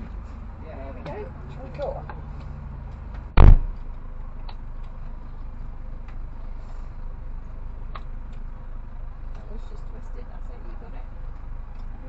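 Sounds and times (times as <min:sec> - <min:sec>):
car engine idling: 0:00.0 - 0:12.0
car door shutting: 0:03.4 - 0:03.8.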